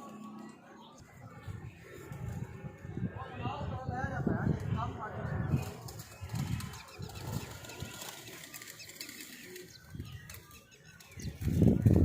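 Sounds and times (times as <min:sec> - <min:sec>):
pigeon wings flapping: 0:05.5 - 0:12.0.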